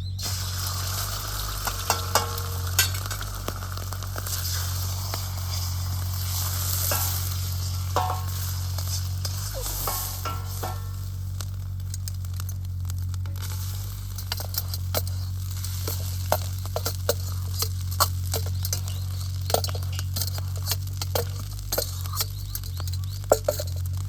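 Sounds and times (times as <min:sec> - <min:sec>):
steady low hum: 0:00.0 - 0:24.0
food sizzling in a wok: 0:00.1 - 0:24.0
metal ladle scraping a pan: 0:00.2 - 0:12.6, 0:13.2 - 0:24.0
short metallic rings: 0:01.4 - 0:03.6, 0:06.7 - 0:11.1, 0:13.4 - 0:24.0.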